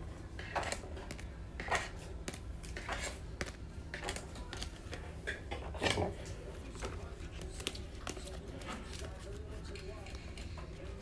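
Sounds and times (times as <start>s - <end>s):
cards clicking and rustling: 6.7s - 10.5s.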